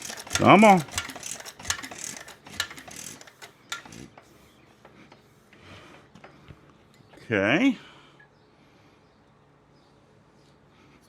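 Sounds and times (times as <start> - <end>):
engine mechanism clicking: 0.0 - 5.3.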